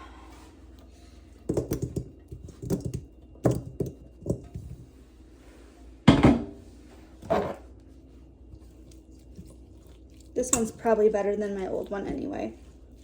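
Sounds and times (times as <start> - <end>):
utensils knocking on a counter: 6.1 - 6.5.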